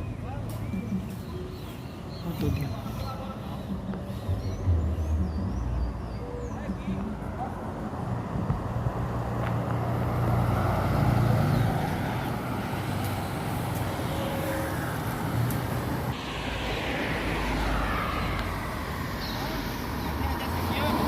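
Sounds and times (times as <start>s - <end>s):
car engines humming: 0.0s - 21.0s
tyres hissing on wet pavement: 11.4s - 21.0s.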